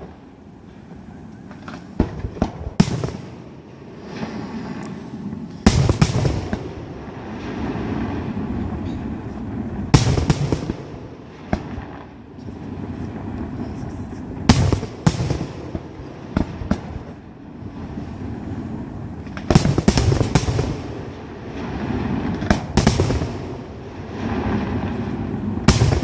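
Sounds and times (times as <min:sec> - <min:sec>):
firework shells bursting: 0:01.4 - 0:06.8, 0:19.2 - 0:21.1, 0:25.6 - 0:26.0
rapid small firework pops: 0:01.5 - 0:03.4, 0:05.6 - 0:06.7, 0:14.5 - 0:17.2, 0:19.2 - 0:20.9, 0:22.2 - 0:23.4, 0:25.7 - 0:26.0.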